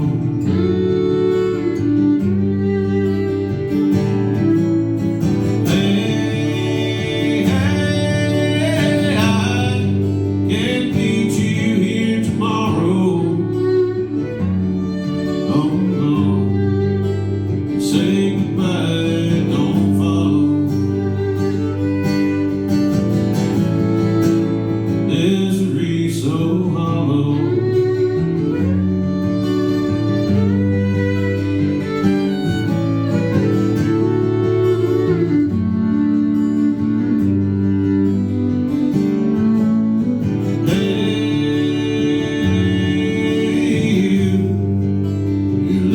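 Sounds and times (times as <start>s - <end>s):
acoustic guitar strumming: 0.0s - 45.9s
person singing: 5.5s - 22.0s, 25.1s - 28.8s, 40.2s - 45.9s.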